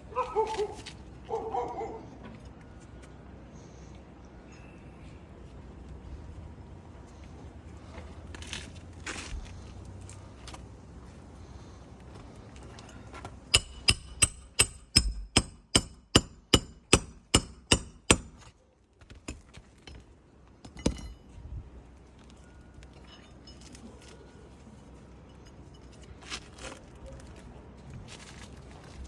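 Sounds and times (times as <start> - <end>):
hammer striking roofing nails: 13.5 - 18.5.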